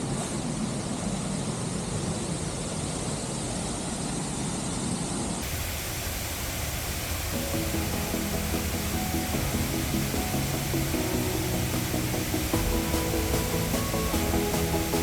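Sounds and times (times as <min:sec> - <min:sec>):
waterfall rushing: 0:05.4 - 0:15.0
faint music: 0:05.9 - 0:15.0.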